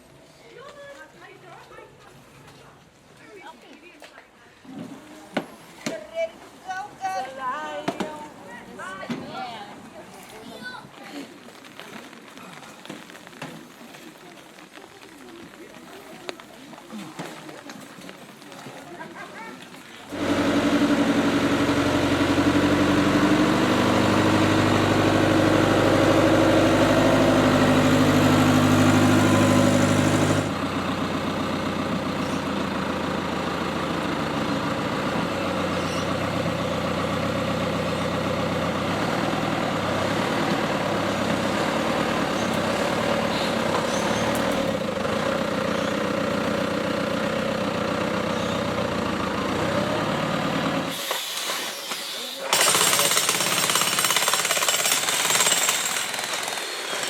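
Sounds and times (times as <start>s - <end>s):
engine running steadily: 20.1s - 51.0s
quieter steady engine: 20.1s - 51.0s.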